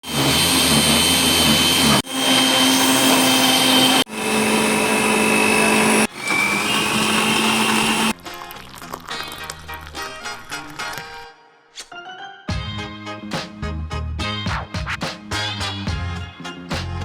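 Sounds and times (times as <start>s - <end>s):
blender motor running: 0.0s - 8.1s.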